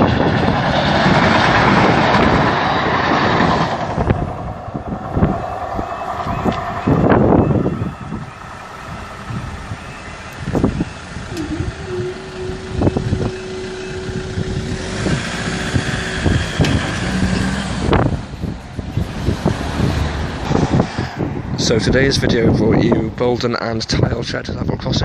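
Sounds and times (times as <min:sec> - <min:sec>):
vehicles passing by: 0:00.0 - 0:24.4
steady tone: 0:03.8 - 0:18.2.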